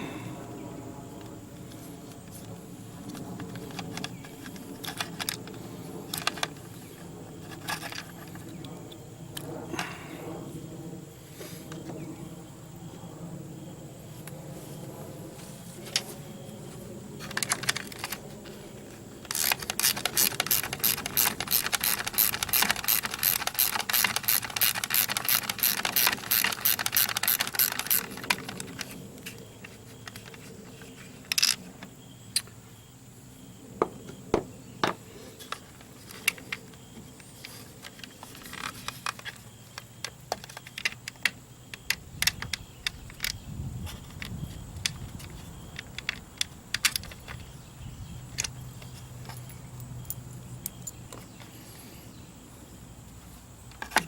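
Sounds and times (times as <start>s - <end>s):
metal parts clicking and knocking: 3.1s - 6.8s, 7.4s - 8.6s, 17.2s - 18.6s, 19.2s - 31.7s, 37.4s - 47.5s
ratchet clicking: 19.3s - 28.9s.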